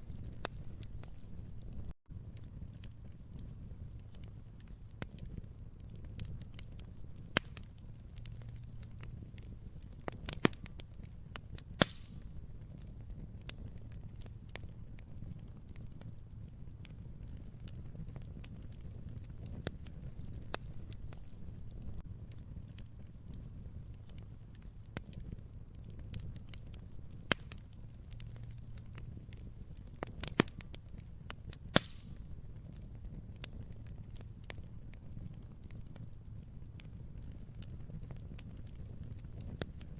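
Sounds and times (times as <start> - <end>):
loud fire pops: 0.0 - 39.9
low rumble of flame: 0.0 - 39.9
wood fire crackling: 0.0 - 39.9
sharp pops and snaps: 7.3 - 9.5, 11.8 - 12.9, 23.9 - 30.8, 31.6 - 32.8.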